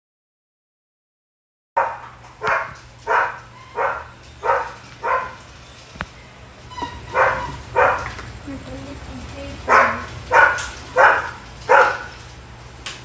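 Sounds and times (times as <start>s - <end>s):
dog barking: 1.8s - 5.4s, 7.1s - 8.2s, 9.6s - 12.2s.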